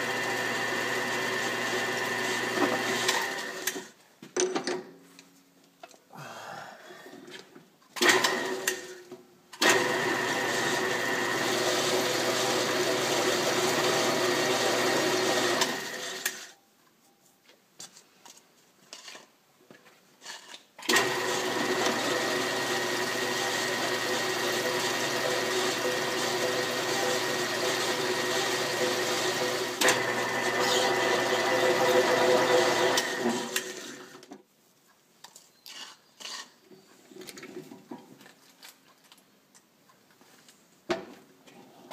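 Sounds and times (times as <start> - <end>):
drill press boring steel: 20.9 - 34.2.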